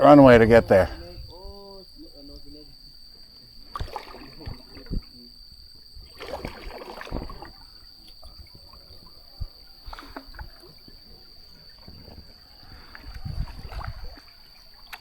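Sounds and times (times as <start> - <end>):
paddle splashing through water: 3.6 - 5.2, 6.0 - 15.0.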